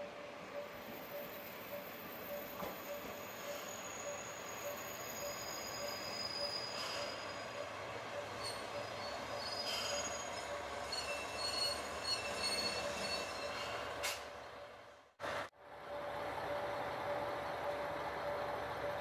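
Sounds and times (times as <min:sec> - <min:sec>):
train wheels squealing on rails: 0:00.1 - 0:14.8.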